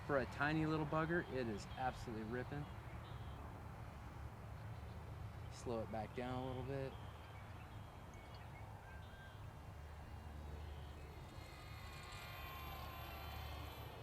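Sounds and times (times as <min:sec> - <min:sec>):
model plane motors whining: 0:08.7 - 0:14.0.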